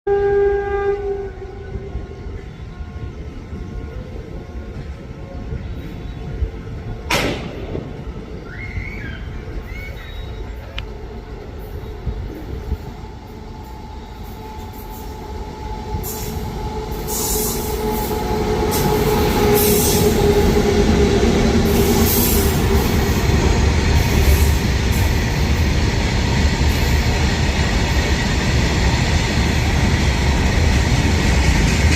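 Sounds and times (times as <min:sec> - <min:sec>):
freight train rumbling past: 0:00.1 - 0:31.9
wheel and rail noise: 0:01.4 - 0:31.9.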